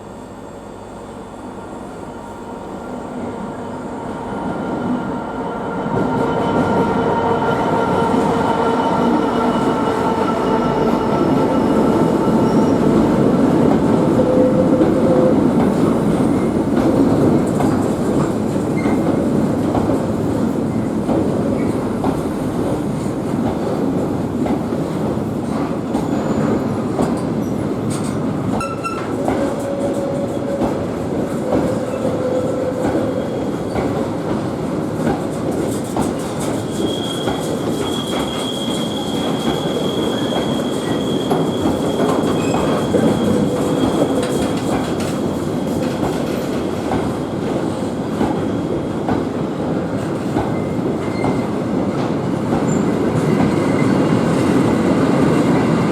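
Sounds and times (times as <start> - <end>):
train wheels rumbling on rails: 1.3 - 55.9
high wheel squeal: 36.7 - 44.6.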